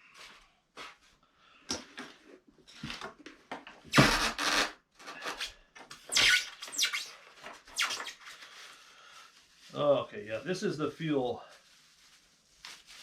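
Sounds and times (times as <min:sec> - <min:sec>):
packaging rustling and crinkling: 0:11.0 - 0:13.0.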